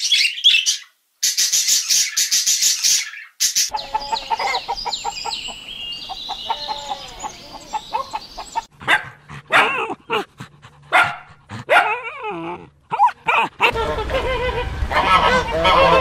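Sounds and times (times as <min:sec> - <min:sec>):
small dog barking: 0:08.8 - 0:10.2, 0:10.9 - 0:12.1.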